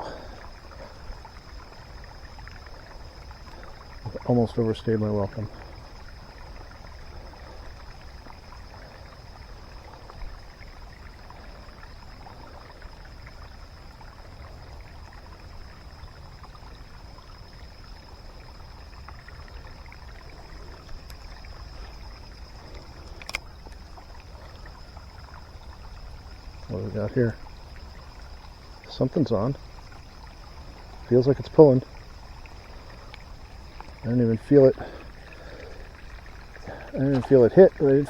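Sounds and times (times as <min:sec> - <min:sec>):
steady rain falling: 0:00.0 - 0:10.2.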